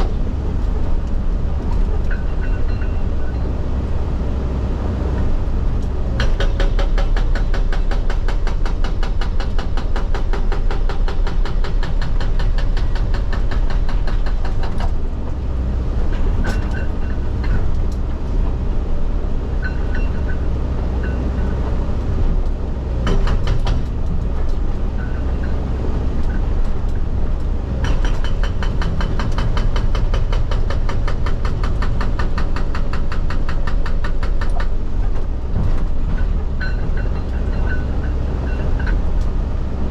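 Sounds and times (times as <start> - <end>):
excavator engine running: 0.0 - 39.9
hydraulic rock breaker hammering: 6.1 - 15.1, 23.0 - 25.6, 27.8 - 39.0.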